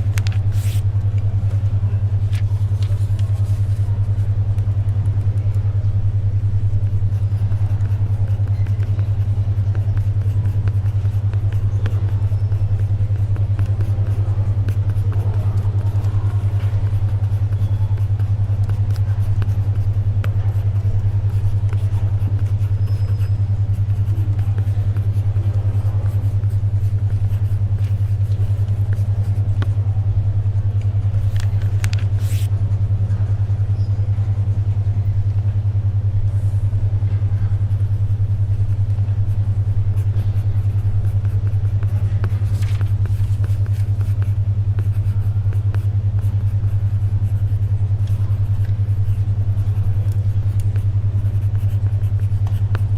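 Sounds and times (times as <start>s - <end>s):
soft paper rustles: 0.0s - 5.6s, 30.7s - 32.6s, 40.0s - 47.1s
faint library ambience: 0.0s - 52.9s
steady low beat tone hum: 0.0s - 52.9s.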